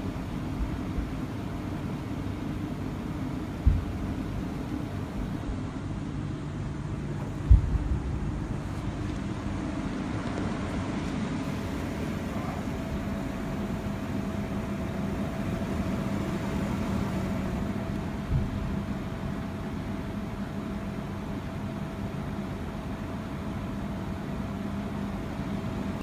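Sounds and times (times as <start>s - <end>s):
steady background hum: 0.0s - 26.0s
distant low boom: 7.1s - 11.0s.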